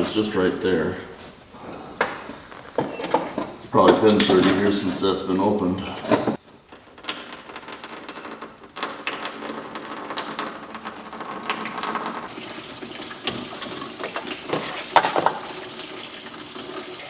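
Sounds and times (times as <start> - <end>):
liquid splashing from drain: 9.1 - 17.0.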